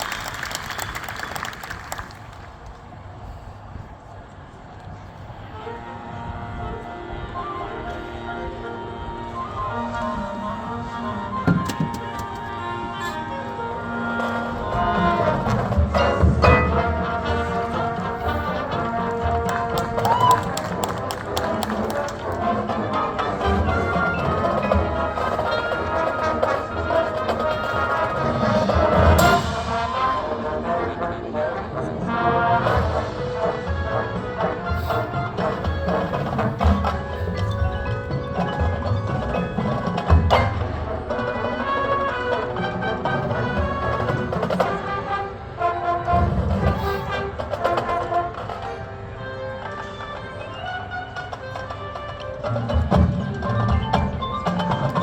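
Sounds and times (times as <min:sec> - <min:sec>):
marching band playing: 0:05.5 - 0:55.0.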